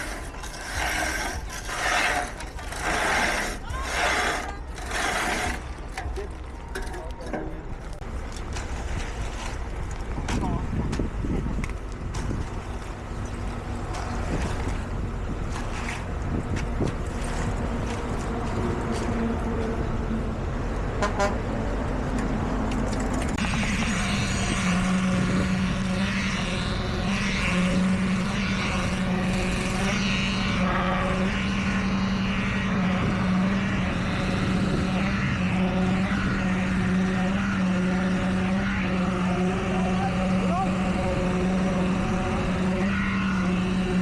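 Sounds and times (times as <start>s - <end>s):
busy machine noise: 0.0s - 16.0s
diesel engine running: 0.0s - 44.0s.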